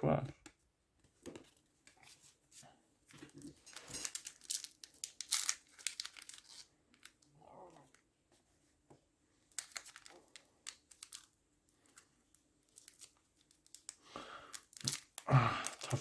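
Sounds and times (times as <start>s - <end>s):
wrapper crinkling: 3.1s - 7.3s, 9.5s - 16.0s
card pack wrapper tearing: 3.3s - 7.2s, 9.5s - 12.0s, 12.6s - 16.0s.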